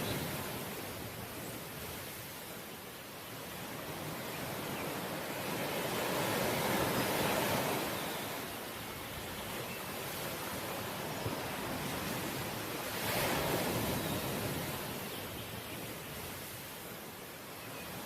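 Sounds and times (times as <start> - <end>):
sea waves breaking on shore: 0.0 - 18.0.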